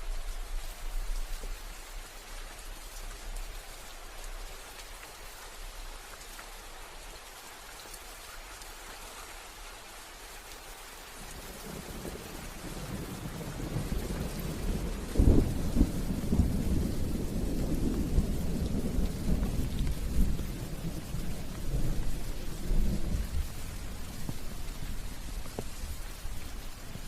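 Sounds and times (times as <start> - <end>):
steady rain: 0.0 - 27.0
thunder rumbling and cracking: 11.3 - 27.0.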